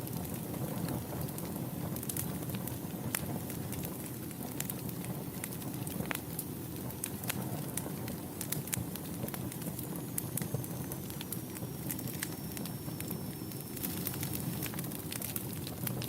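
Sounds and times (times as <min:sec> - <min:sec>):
fire crackling and popping: 0:00.0 - 0:16.0
faint high whistle: 0:10.1 - 0:14.7.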